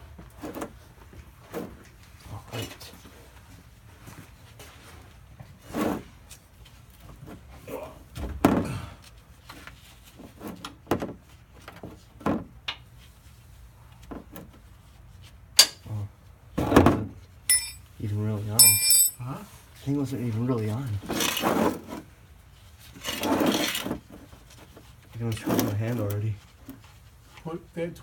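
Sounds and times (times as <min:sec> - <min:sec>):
tools knocking and clunking: 0:17.5 - 0:17.8, 0:18.6 - 0:19.2.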